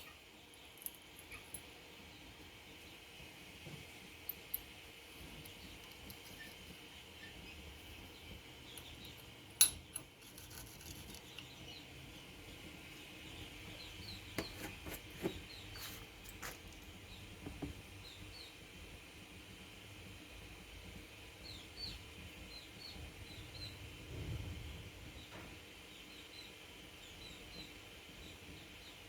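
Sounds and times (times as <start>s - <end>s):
clicks and clinks of small tools: 8.7s - 11.5s.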